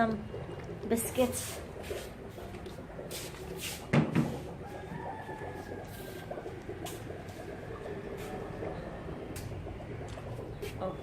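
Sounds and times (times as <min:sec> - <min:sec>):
rooster crowing faintly: 0:04.6 - 0:06.3.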